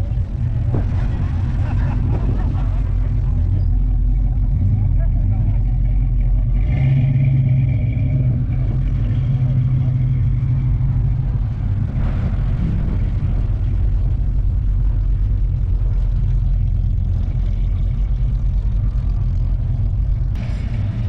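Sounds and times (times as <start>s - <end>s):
car engine exhaust rumble: 0.0s - 21.0s.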